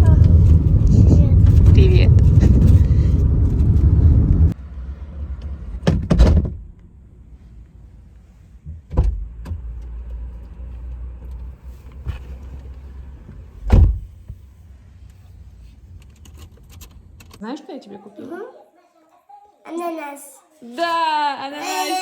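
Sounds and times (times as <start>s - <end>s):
car engine rumbling: 0.0s - 17.4s.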